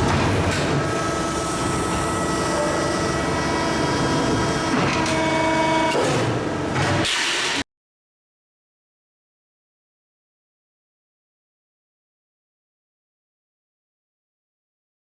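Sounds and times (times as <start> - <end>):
machine whining tones: 0.1 - 6.5.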